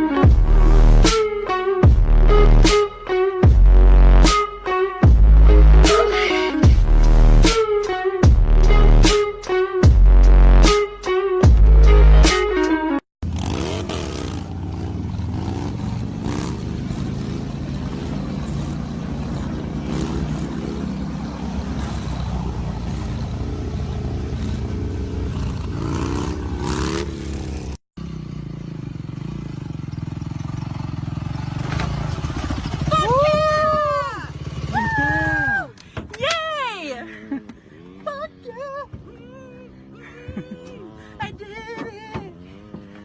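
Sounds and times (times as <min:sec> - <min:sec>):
motorcycle engine revving: 0:13.2 - 0:35.4, 0:37.0 - 0:41.2, 0:42.1 - 0:43.0.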